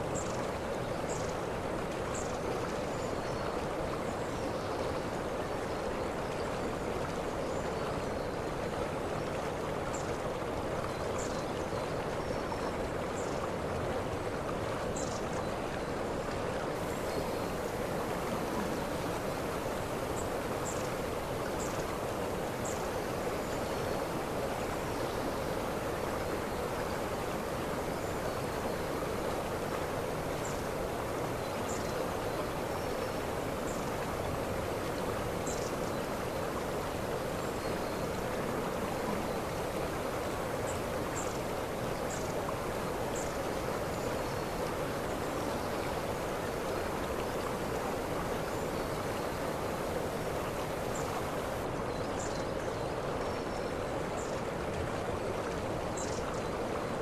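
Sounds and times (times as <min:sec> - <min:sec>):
waterfall rushing: 0:16.8 - 0:43.1, 0:44.4 - 0:51.7.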